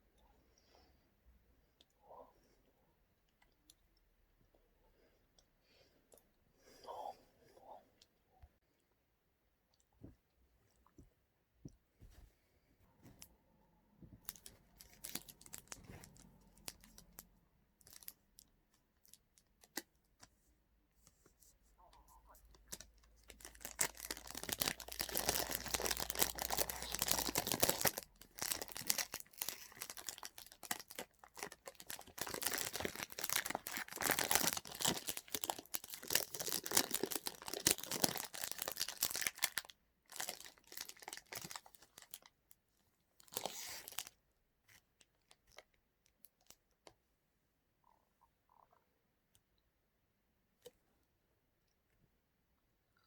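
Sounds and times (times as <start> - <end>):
snack packaging crinkling: 14.2 - 19.9, 22.4 - 42.4.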